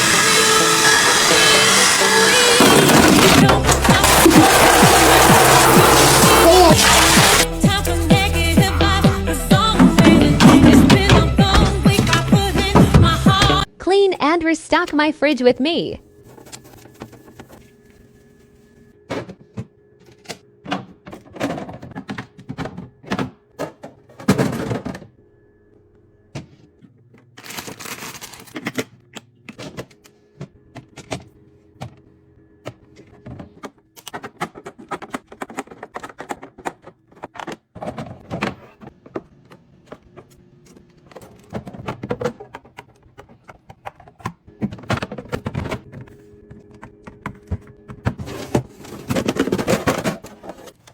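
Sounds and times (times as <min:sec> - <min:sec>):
containers knocking on fridge shelves: 0:09.5 - 0:13.7.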